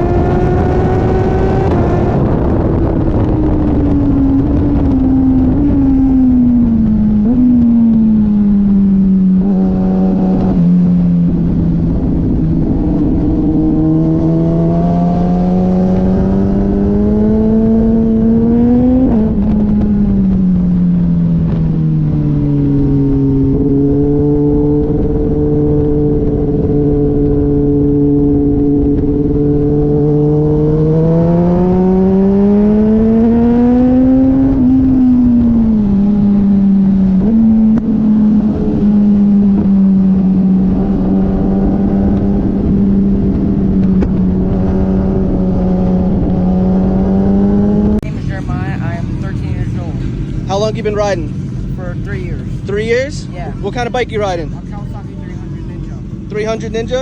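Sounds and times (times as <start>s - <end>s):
motorcycle engine on track: 0.0s - 57.0s.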